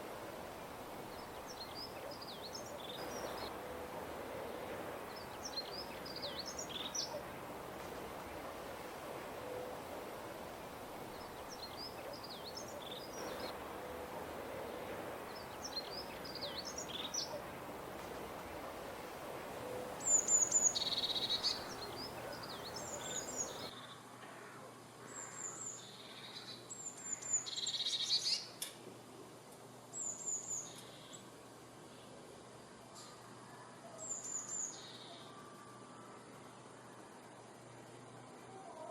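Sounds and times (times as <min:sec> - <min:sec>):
background hiss: 0:00.0 - 0:38.9
magpies chirping: 0:10.6 - 0:23.7.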